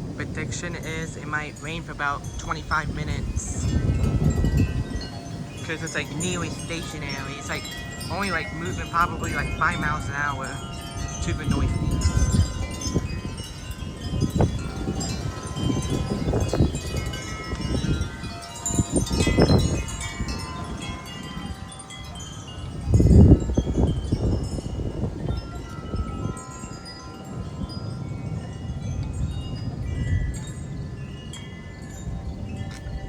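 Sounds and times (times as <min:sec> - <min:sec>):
low rumbles: 0:00.0 - 0:21.2
gusty storm wind: 0:00.0 - 0:33.0
wind chimes ringing: 0:00.0 - 0:33.0.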